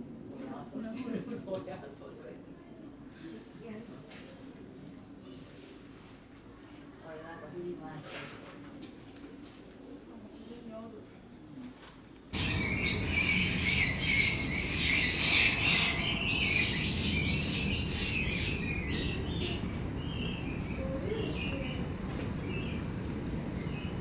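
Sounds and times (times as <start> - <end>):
birds chirping: 12.4 - 24.0
low background hum: 12.4 - 24.0.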